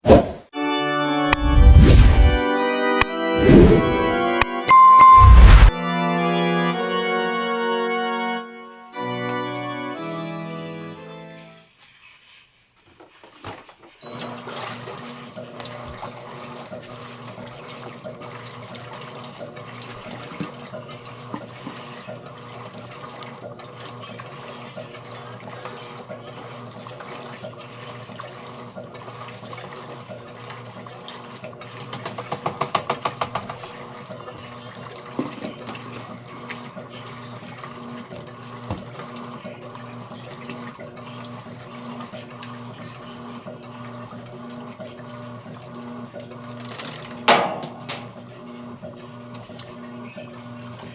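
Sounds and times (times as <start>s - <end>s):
low hum: 1.3s - 2.5s, 3.4s - 5.8s
washing machine filling with water: 13.1s - 50.9s.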